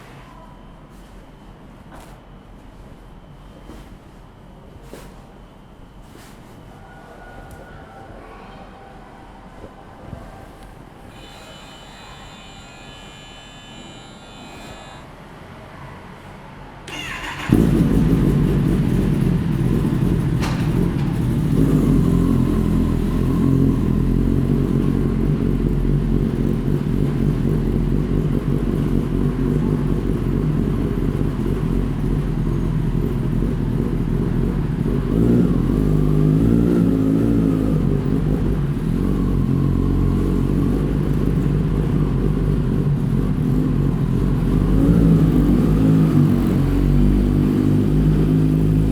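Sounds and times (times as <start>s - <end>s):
motorcycle starter cranking: 16.9s - 22.0s
motorcycle engine idling: 16.9s - 48.9s.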